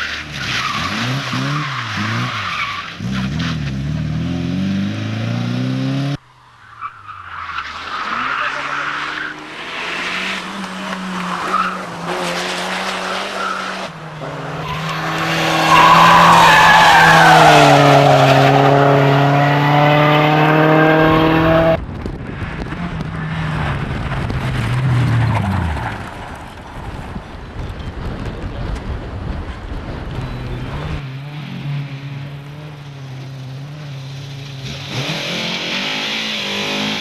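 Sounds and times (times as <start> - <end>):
tyres squealing and skidding: 0.0 - 3.8, 6.5 - 19.6
race car engines running: 7.7 - 37.0.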